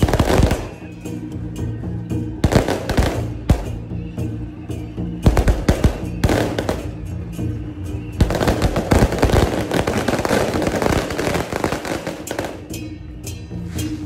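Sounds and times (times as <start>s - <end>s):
firecrackers crackling: 0.0s - 1.2s, 2.4s - 4.4s, 5.2s - 12.8s
band music with held notes: 0.0s - 14.0s.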